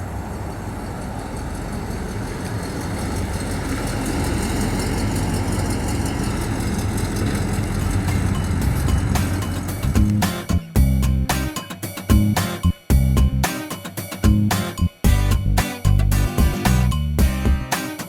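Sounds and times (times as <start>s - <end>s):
car engine low rumble: 0.0s - 11.5s.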